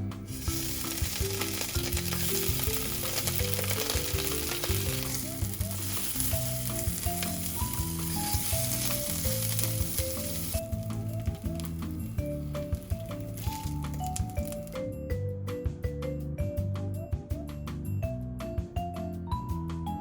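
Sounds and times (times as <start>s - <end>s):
food sizzling and popping: 0.0s - 15.0s.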